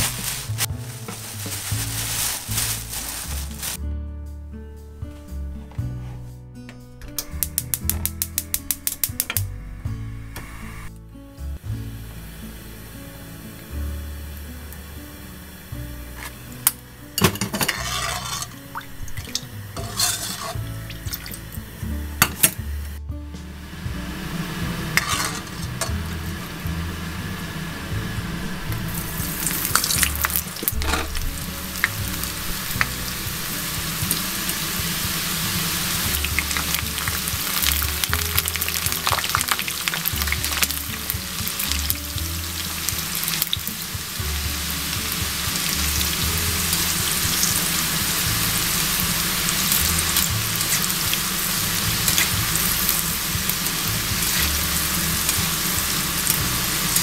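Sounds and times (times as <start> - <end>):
food sizzling in hot oil: 0.0 - 3.8, 7.2 - 10.9, 11.6 - 57.0
background music with bass: 0.0 - 57.0
utensil clicking against pan: 7.2 - 9.4.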